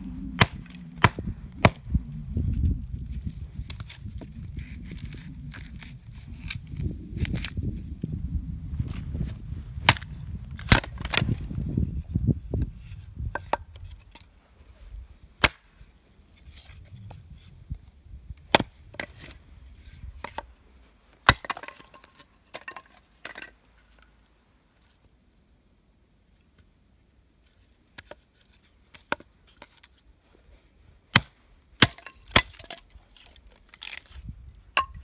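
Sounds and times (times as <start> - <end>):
firewood cracking: 0.0 - 8.0, 8.9 - 11.5, 21.2 - 22.2, 31.2 - 35.0
low rustle of handling: 0.0 - 21.2.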